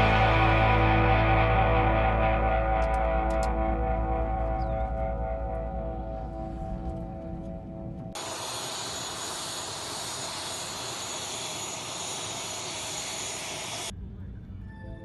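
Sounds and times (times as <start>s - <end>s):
jet engine running: 8.1s - 13.9s.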